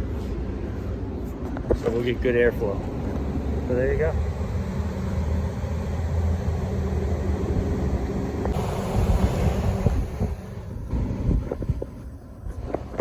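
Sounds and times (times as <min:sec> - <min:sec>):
condenser unit humming: 0:00.5 - 0:13.0
wind buffeting microphone: 0:08.5 - 0:13.0.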